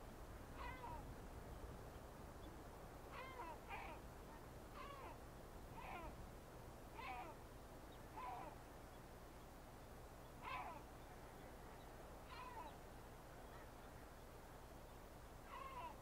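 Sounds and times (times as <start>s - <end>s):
bird calling faintly: 2.4s - 6.2s, 6.9s - 9.0s, 9.8s - 16.0s.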